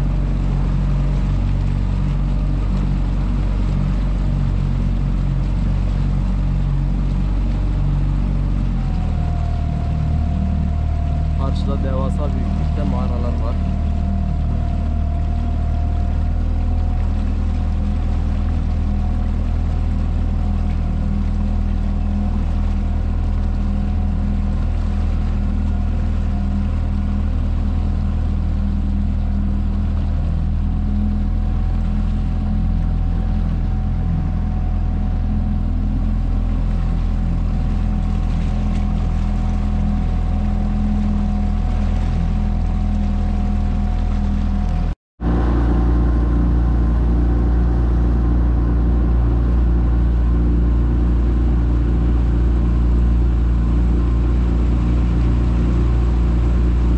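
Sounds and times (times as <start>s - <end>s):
motorboat engine humming: 0.0s - 56.9s.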